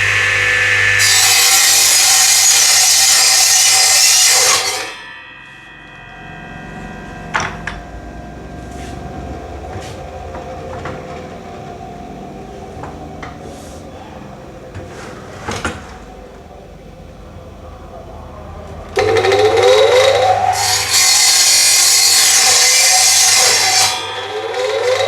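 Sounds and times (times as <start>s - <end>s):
woodworking power tool whine: 0.0s - 17.4s, 18.5s - 25.0s
low machine hum: 5.0s - 20.6s.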